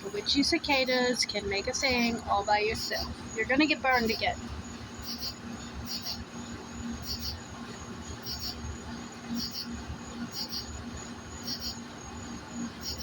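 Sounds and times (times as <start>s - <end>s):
high-pitched insect whine: 0.0s - 13.0s
insect double chirps: 0.4s - 6.3s, 6.9s - 7.4s, 8.1s - 8.6s, 9.3s - 11.8s, 12.7s - 13.0s.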